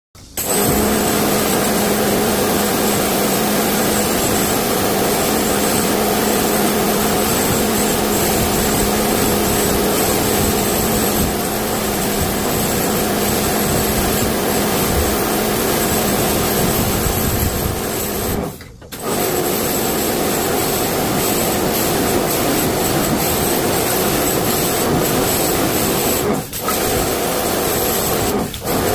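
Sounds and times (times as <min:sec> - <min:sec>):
pressure washer spraying: 0:00.2 - 0:28.9.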